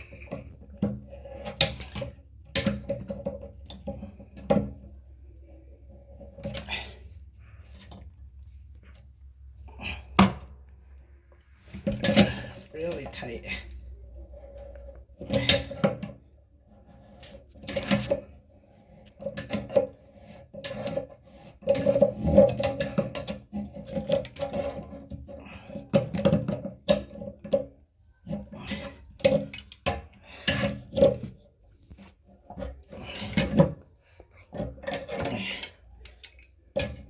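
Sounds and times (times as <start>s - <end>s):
wrench scraping and clicking: 34.5s - 37.0s.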